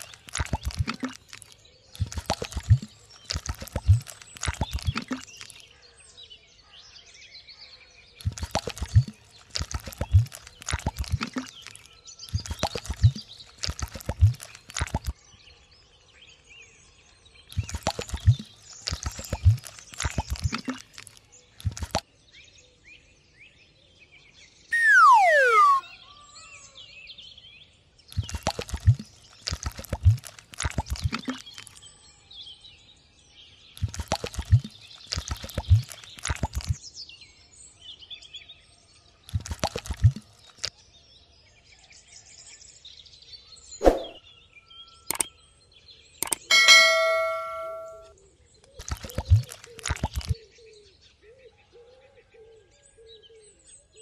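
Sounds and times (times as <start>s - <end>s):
wet cement plopping: 0.0s - 5.6s, 8.2s - 15.2s, 17.6s - 22.0s, 28.2s - 31.7s, 33.8s - 36.8s, 39.3s - 40.3s, 48.8s - 50.4s
descending whistle-like tone: 24.7s - 25.9s.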